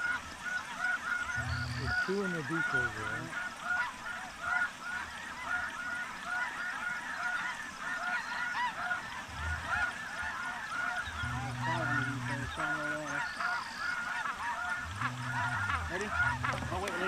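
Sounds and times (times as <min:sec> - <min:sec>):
geese honking: 0:00.0 - 0:17.0
low steady tone: 0:11.1 - 0:13.0, 0:14.8 - 0:17.0.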